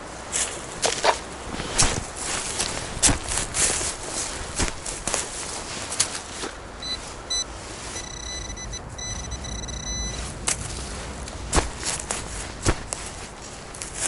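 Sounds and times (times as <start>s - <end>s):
low steady rumble: 6.6s - 14.0s
metal detector beeps: 6.8s - 10.3s
metal detector steady high tone: 6.8s - 10.3s.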